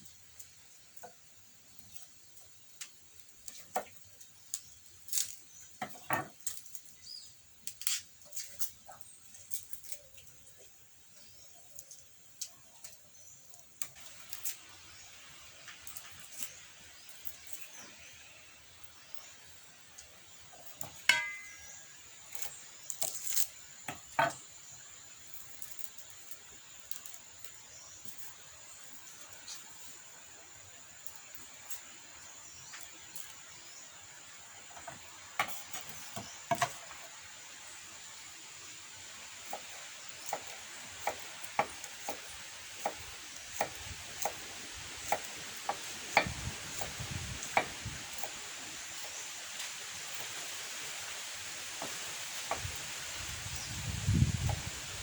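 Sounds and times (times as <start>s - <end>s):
steady background hiss: 0.0s - 55.0s.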